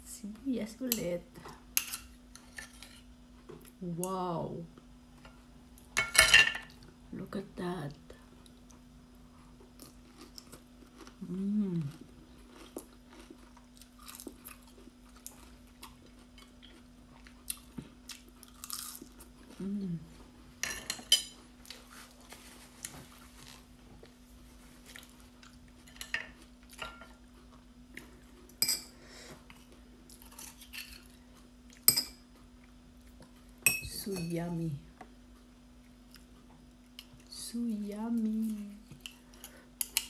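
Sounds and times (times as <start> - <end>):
chewing and crunching: 8.3 - 20.3, 20.9 - 28.6, 29.4 - 33.5
person humming: 11.2 - 12.0, 19.6 - 20.2.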